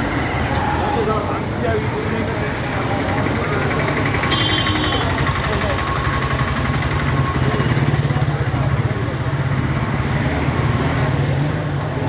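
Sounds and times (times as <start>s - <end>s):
train running noise: 2.6s - 9.4s.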